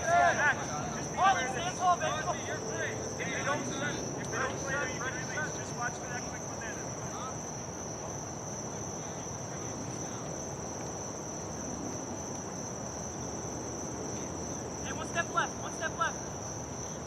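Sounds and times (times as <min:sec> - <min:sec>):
distant shouts: 0:00.0 - 0:10.6, 0:14.2 - 0:17.0
crickets chirring: 0:00.0 - 0:17.0.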